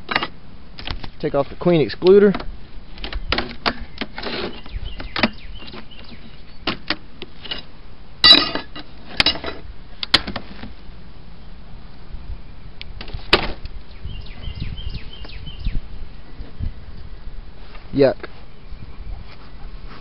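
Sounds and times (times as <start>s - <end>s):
clattering scrape: 4.2s - 4.7s.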